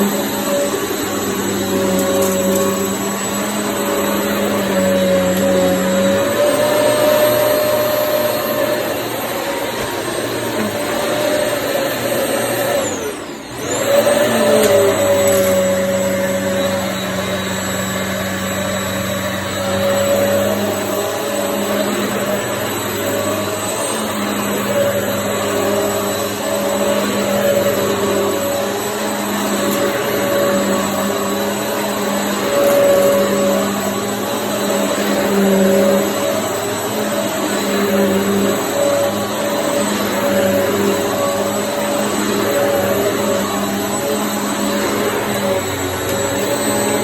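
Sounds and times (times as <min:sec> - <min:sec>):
vacuum cleaner motor whine: 0:00.0 - 0:47.0.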